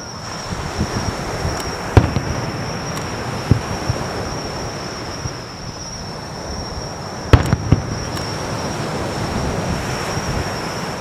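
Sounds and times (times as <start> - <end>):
wind noise on microphone: 0.0 - 11.0
fireworks bangs: 1.5 - 5.5, 7.2 - 9.7.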